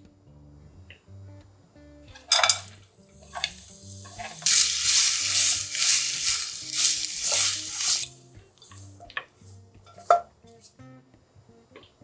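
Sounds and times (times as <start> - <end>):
carrots sizzling in hot oil: 2.3 - 10.2
spatula stirring in pan: 3.2 - 8.8.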